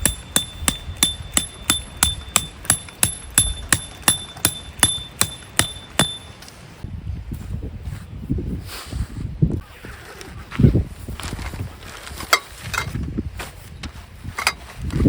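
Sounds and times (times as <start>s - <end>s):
hammering on metal: 0.0s - 6.4s
handling sounds: 0.0s - 6.8s.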